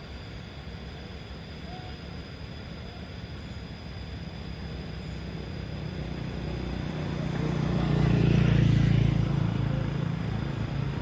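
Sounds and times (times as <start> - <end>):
diesel locomotive engine humming: 0.0 - 11.0.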